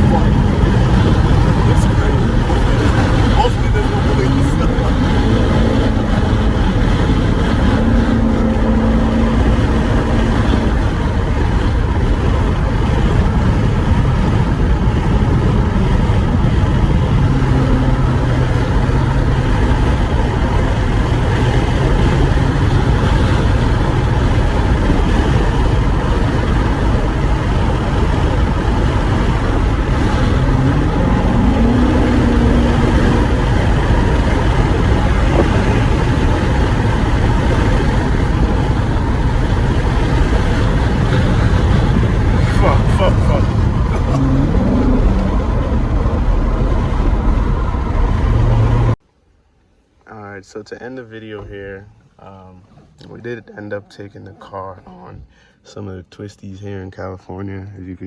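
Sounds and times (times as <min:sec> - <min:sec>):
car engine while driving: 0:00.0 - 0:49.0, 0:50.4 - 0:55.3
wind buffeting microphone: 0:00.0 - 0:49.0.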